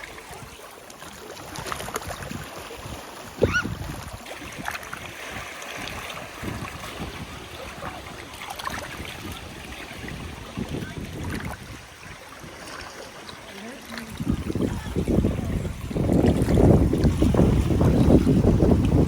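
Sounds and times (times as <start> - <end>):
lake water lapping: 0.0 - 19.0.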